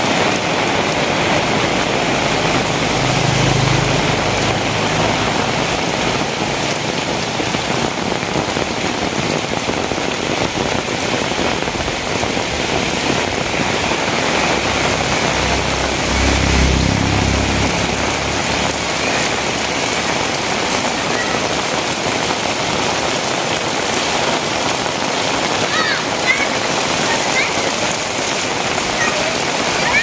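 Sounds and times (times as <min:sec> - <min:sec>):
heavy rain falling: 0:00.0 - 0:30.0
low rumble: 0:11.6 - 0:20.9.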